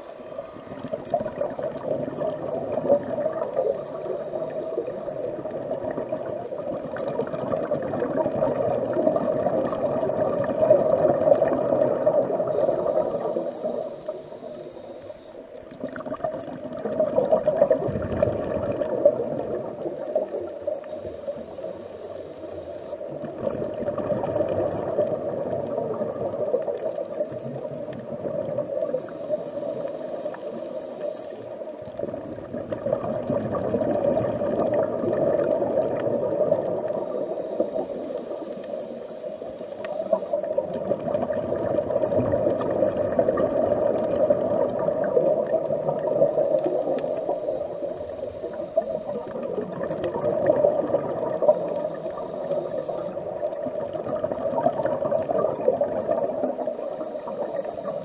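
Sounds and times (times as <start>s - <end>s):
underwater watery hum: 0.0s - 58.0s.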